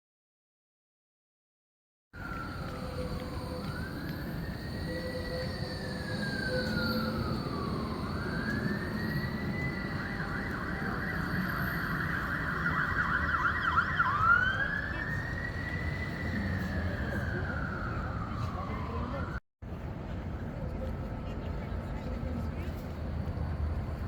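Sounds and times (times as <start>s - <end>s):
emergency siren wailing: 2.2s - 19.4s
low street noise: 2.2s - 24.0s.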